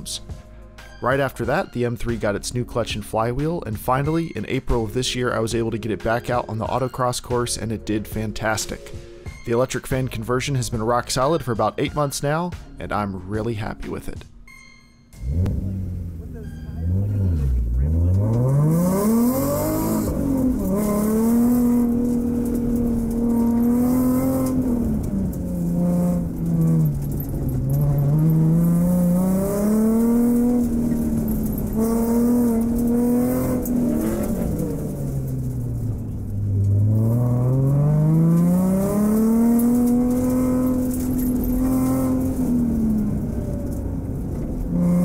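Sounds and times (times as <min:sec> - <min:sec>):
car engine revving hard: 0:15.2 - 0:16.2, 0:16.8 - 0:45.0.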